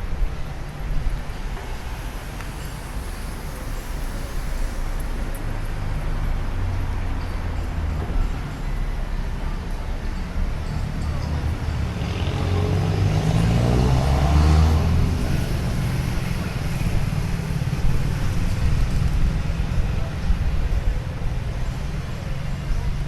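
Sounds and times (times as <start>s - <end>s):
motor vehicle passing: 0.2s - 7.0s, 11.8s - 19.4s
wind rumble on microphone: 10.3s - 23.0s.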